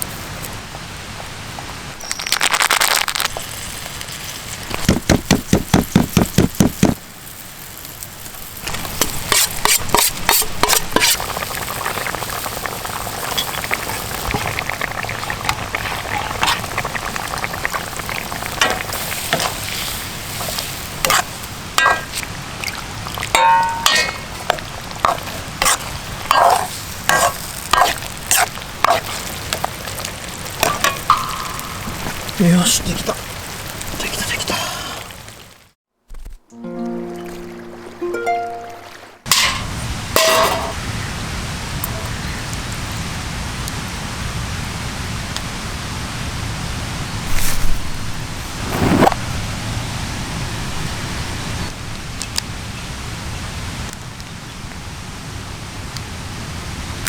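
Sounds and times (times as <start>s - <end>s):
food sizzling in a pan: 2.0s - 35.6s
utensil scraping and knocking pan: 23.4s - 29.1s.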